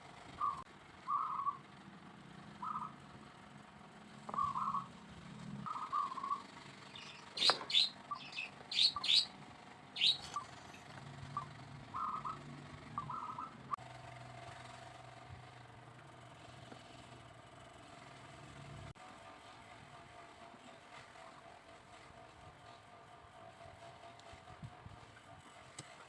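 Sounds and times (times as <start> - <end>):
birds calling: 0.3 - 1.7, 2.5 - 3.1, 4.2 - 5.0, 5.6 - 9.4, 10.0 - 13.8.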